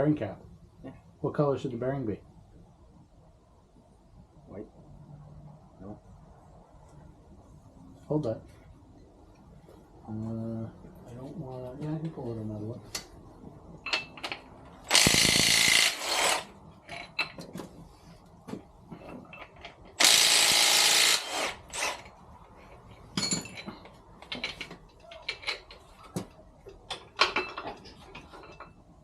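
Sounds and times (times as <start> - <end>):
cordless impact gun: 14.9 - 16.5, 20.0 - 22.1
metal parts clicking and knocking: 16.8 - 17.5, 19.0 - 20.3, 21.8 - 26.1, 26.7 - 28.9.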